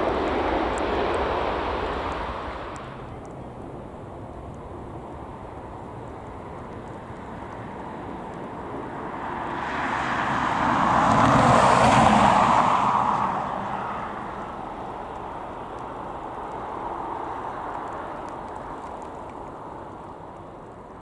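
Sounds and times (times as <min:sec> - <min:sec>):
vehicle passing by whooshing: 0:07.6 - 0:15.4.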